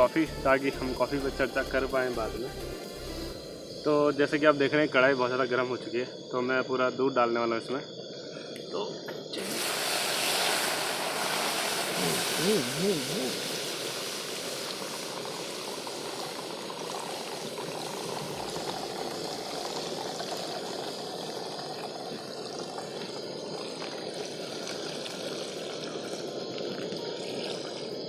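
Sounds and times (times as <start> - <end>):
milk sizzling on hot metal: 9.2 - 28.0.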